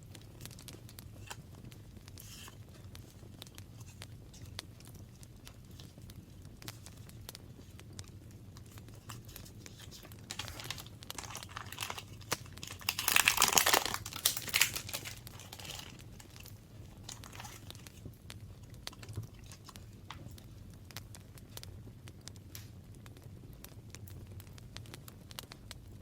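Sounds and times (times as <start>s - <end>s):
paper crinkling: 0.4s - 7.8s, 8.6s - 20.5s.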